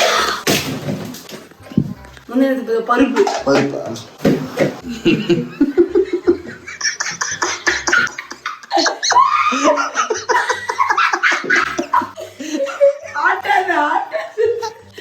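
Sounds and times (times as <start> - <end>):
hearty human laughter: 4.8 - 15.0.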